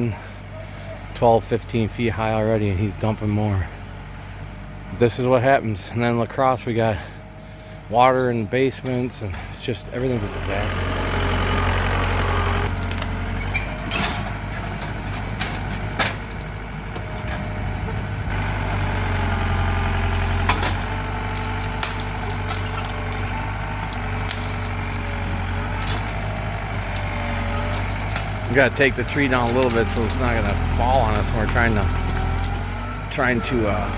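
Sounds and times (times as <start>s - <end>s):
tractor engine running: 0.0s - 33.9s
wood breaking cracks: 10.4s - 17.4s, 18.3s - 32.8s.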